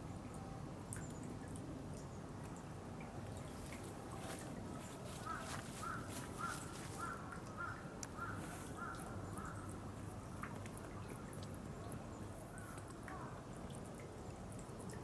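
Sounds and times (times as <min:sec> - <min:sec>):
kookaburra calling: 0:05.2 - 0:09.6.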